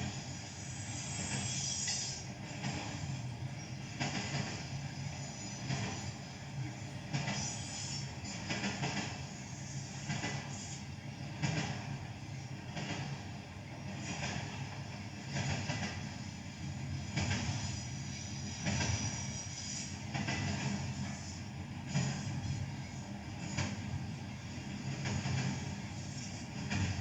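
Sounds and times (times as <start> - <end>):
train rumbling and clattering: 0.0 - 27.0.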